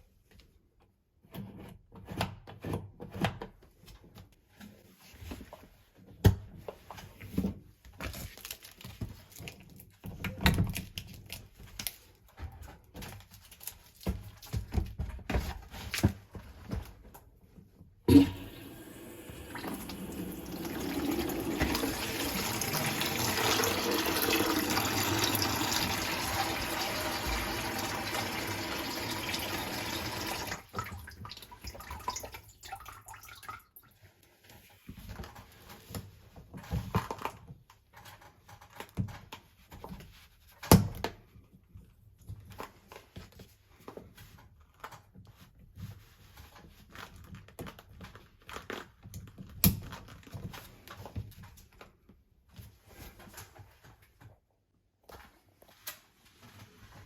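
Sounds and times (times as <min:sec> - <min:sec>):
water running from a tap: 0:18.1 - 0:33.8.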